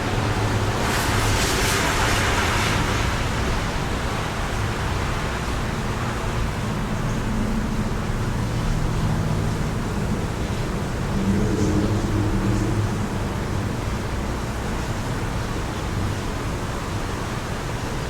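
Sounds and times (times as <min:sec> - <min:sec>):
low hum: 0:06.6 - 0:14.9
wind rushing: 0:09.1 - 0:15.3.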